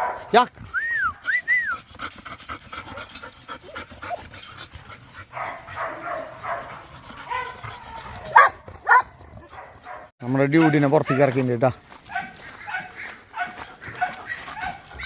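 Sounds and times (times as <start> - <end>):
dog panting: 0.5 - 10.0.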